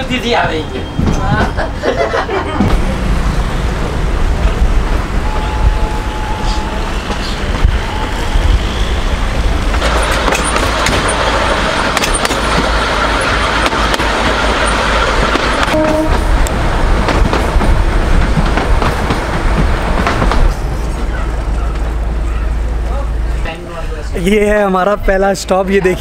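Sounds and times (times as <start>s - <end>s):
train wheel and wind rush: 0.0s - 26.0s.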